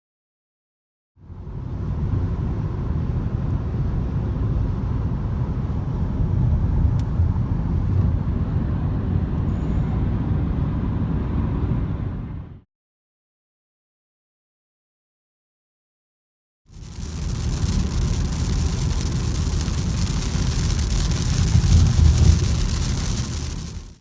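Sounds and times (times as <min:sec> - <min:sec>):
aerial tramway car rumble: 0:01.2 - 0:12.6, 0:16.7 - 0:24.0.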